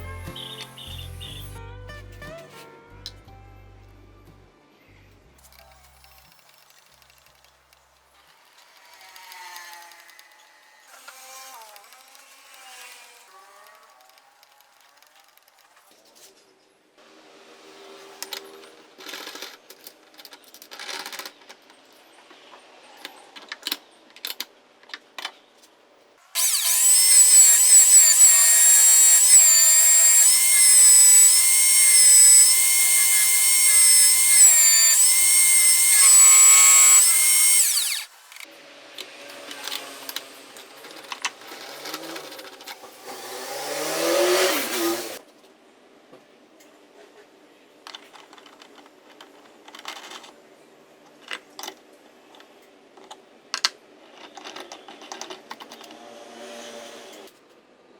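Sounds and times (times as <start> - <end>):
electric drill whining: 26.4 - 38.5.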